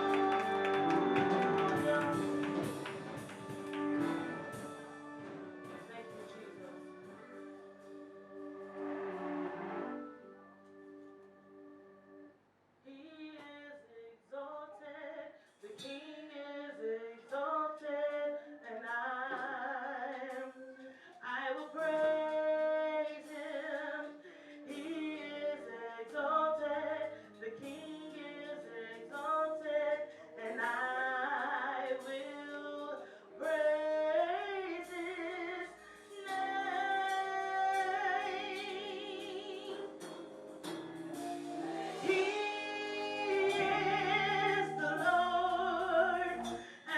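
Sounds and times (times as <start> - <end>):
woman singing with vibrato: 0.0 - 3.3, 12.9 - 40.0, 41.6 - 46.9
instrumental accompaniment: 0.0 - 12.4, 21.8 - 46.9.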